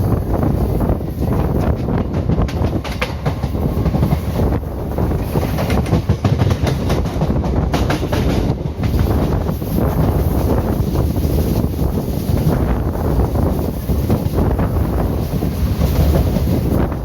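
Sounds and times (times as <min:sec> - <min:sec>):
train coach rumble: 0:00.0 - 0:17.0
wind rushing past: 0:00.0 - 0:17.0
wheels clacking over rail joints: 0:01.0 - 0:09.4.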